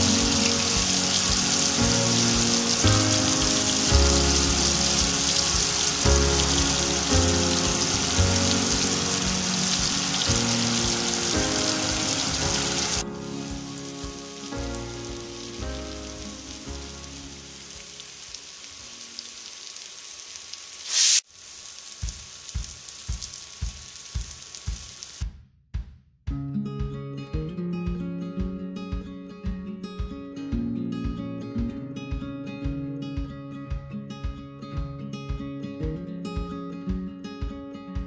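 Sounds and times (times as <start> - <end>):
background music: 0.0 - 18.3, 26.3 - 38.0
food sizzling in oil: 0.0 - 25.2.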